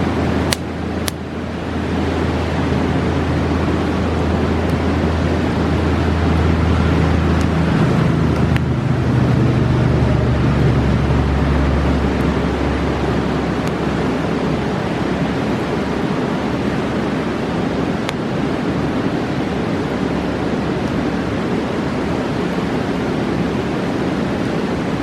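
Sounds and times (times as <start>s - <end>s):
river rushing: 0.0s - 25.0s
campfire popping: 0.4s - 1.5s, 3.3s - 9.2s, 10.4s - 14.4s.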